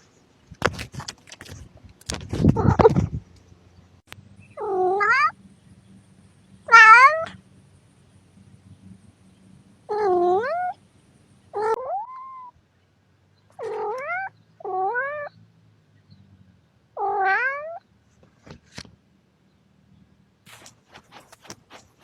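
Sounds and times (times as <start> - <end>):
cat meowing: 4.6 - 5.3, 6.7 - 7.3, 11.6 - 12.5, 13.6 - 15.3, 17.0 - 17.8.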